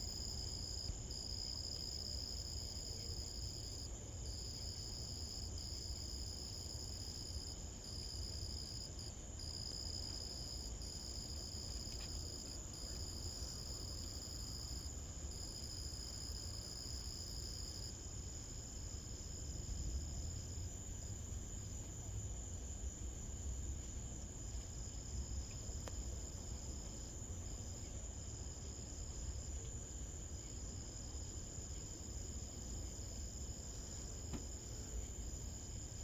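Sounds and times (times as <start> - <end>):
crickets trilling: 0.0 - 19.3.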